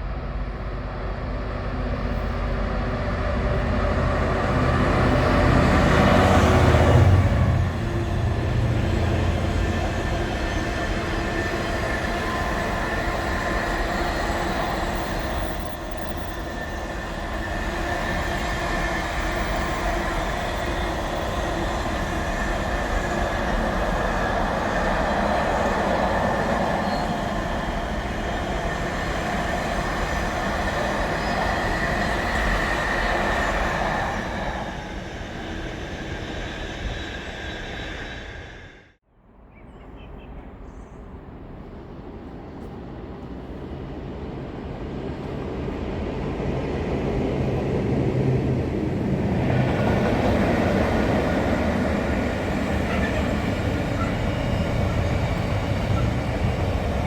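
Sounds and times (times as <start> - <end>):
freight train rumbling on rails: 0.0 - 39.0, 39.7 - 57.0
high wheel squeal: 7.6 - 38.9, 50.0 - 57.0.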